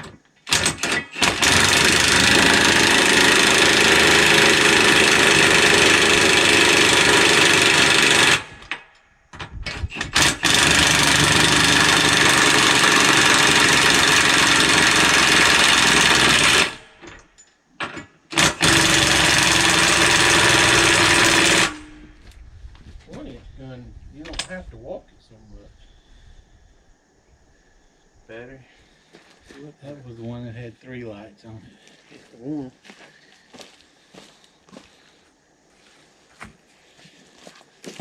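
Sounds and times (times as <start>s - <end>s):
impact wrench hammering lug nuts: 0.0s - 8.8s, 9.9s - 22.0s.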